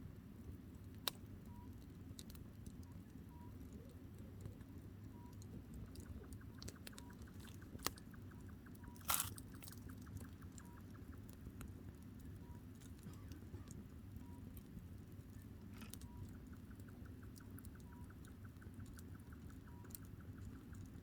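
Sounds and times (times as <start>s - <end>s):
campfire crackling: 0.8s - 21.0s
firewood popping: 5.4s - 13.8s.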